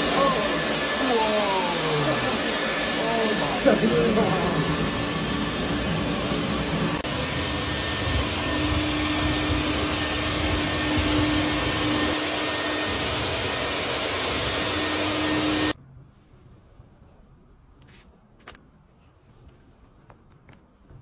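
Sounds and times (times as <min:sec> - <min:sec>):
vacuum suction rushing air: 0:00.0 - 0:15.8.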